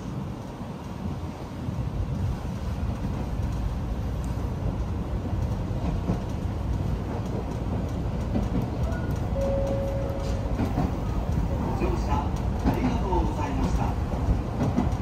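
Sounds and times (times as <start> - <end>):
train wheels and motors rumbling: 0.0 - 15.0
brief steady tone: 9.4 - 10.4.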